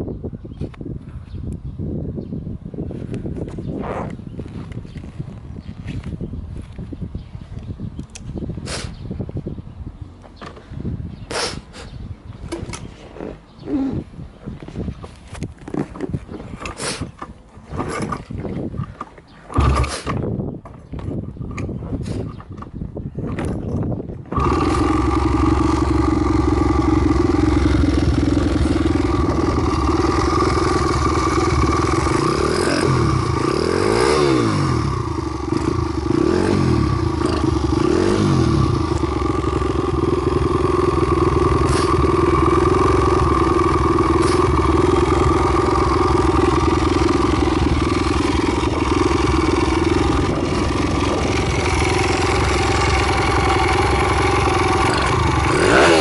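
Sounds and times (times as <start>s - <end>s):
motorcycle engine idling and revving: 12.0s - 56.0s.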